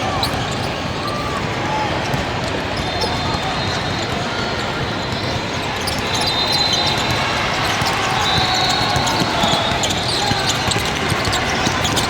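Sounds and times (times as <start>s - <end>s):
ball bouncing on court: 0.2s - 0.6s, 5.0s - 12.0s.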